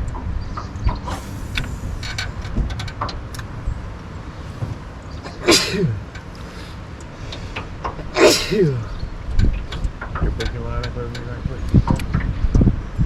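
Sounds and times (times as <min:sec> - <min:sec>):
wind rumble on microphone: 0:00.0 - 0:13.0
breathy vocal bursts: 0:05.2 - 0:09.0.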